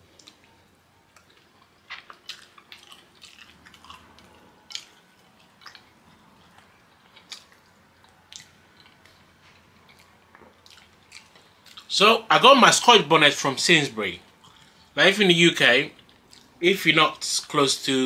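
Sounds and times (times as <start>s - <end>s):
wet chewing: 0.1s - 11.9s, 14.3s - 14.8s, 16.0s - 16.6s.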